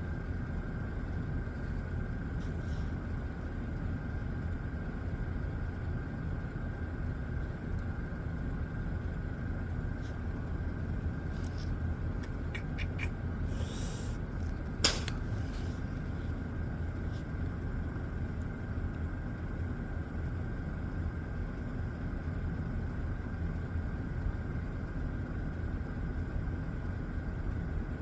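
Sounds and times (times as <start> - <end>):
vehicle rumble inside cab: 0.0 - 28.0
sharp click: 14.8 - 15.7.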